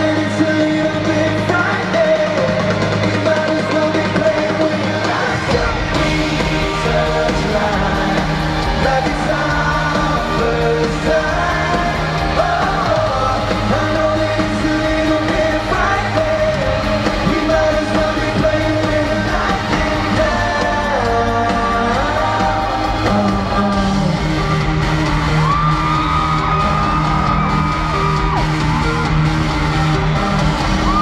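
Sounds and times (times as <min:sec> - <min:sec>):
drums: 0:00.0 - 0:31.0
live pop band playing: 0:00.0 - 0:31.0
people yelling: 0:22.3 - 0:31.0.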